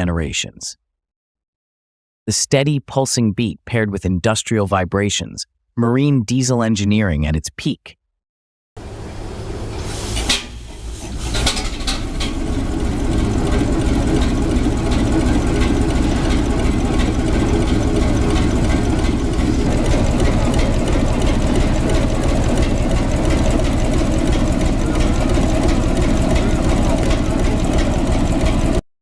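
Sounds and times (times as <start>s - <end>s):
marine diesel engine starting: 8.8s - 28.8s
engine sharp pops: 9.7s - 28.8s.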